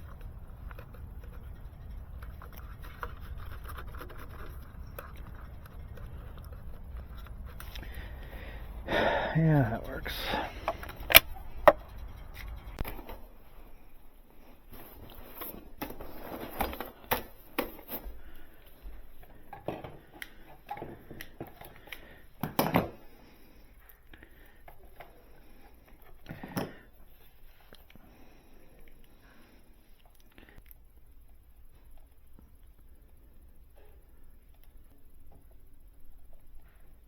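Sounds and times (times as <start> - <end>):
tools clicking and knocking: 10.6 - 13.1.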